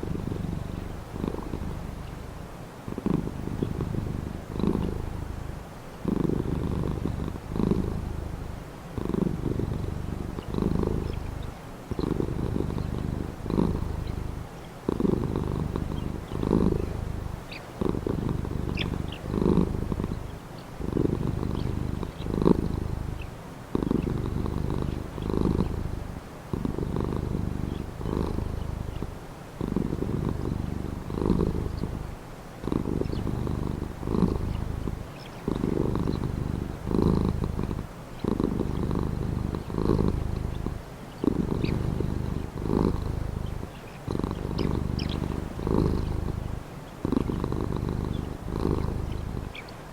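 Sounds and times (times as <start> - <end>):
cat purring: 0.0 - 49.9
faint bird chirps: 9.4 - 29.3, 29.9 - 32.2, 32.8 - 49.9.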